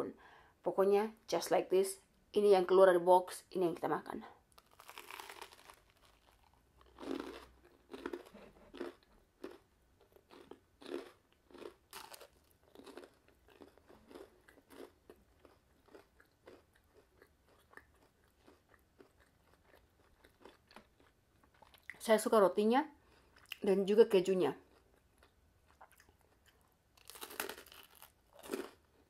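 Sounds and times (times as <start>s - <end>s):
soft chewing: 4.5s - 22.0s, 23.0s - 23.6s, 24.6s - 29.0s
toasted bread crunching: 4.6s - 9.6s, 27.0s - 28.8s.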